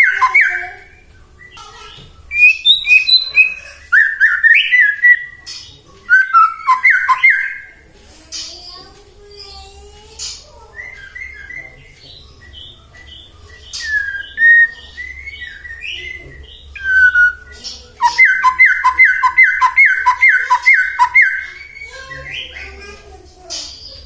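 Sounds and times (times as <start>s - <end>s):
bird repeating falling notes: 0.0s - 0.9s, 16.9s - 21.8s
bird singing whistles and chirps: 0.0s - 7.8s, 10.7s - 22.6s.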